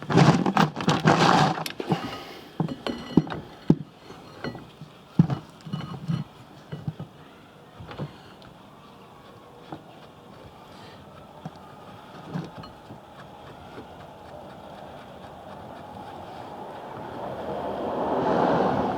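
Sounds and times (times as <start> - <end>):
metal tools clattering: 2.0 - 7.1.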